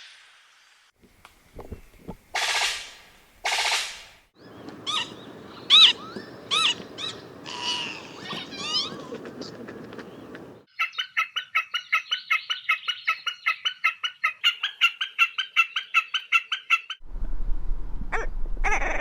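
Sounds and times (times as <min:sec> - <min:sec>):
bird calling repeated ringing notes: 0:04.4 - 0:10.7
loud bird calls: 0:04.4 - 0:13.8.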